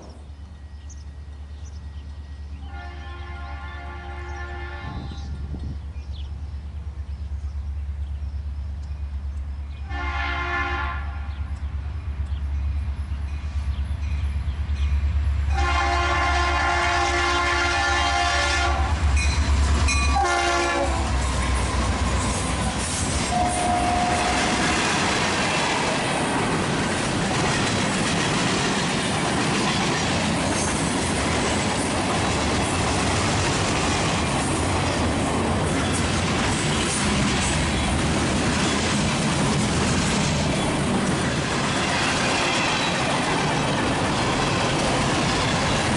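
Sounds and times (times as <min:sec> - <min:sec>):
freight cars wheel and rail noise: 0:00.0 - 0:45.9
train air horn: 0:02.6 - 0:05.3, 0:09.8 - 0:11.4, 0:15.5 - 0:19.0, 0:20.1 - 0:21.2, 0:22.3 - 0:24.7, 0:41.8 - 0:43.0.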